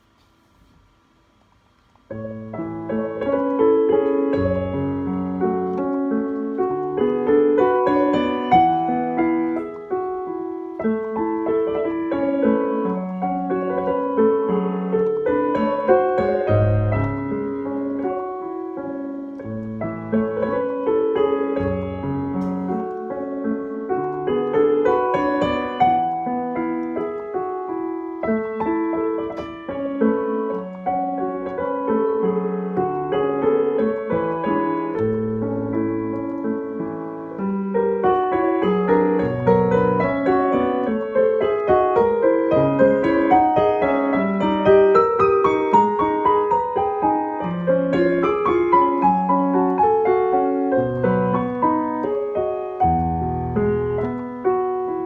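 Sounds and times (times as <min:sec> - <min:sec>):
solo piano: 0:00.0 - 0:55.0.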